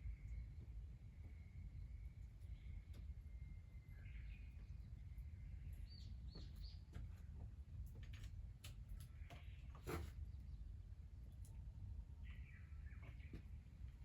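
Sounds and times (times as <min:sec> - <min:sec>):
faint bird chirps: 0:00.0 - 0:06.8.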